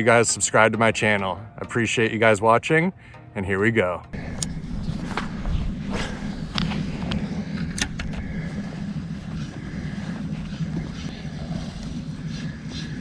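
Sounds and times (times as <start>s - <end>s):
boat motor running: 4.2s - 13.0s.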